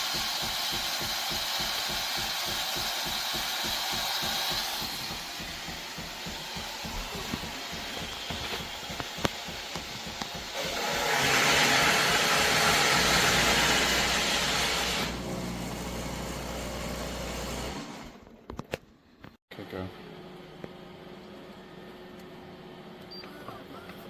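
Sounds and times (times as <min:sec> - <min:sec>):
steam hissing: 0:00.0 - 0:15.2
espresso machine running: 0:00.0 - 0:18.1.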